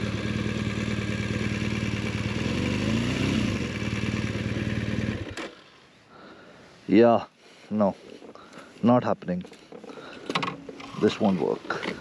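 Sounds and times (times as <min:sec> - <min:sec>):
motorcycle engine running: 0:00.0 - 0:05.8.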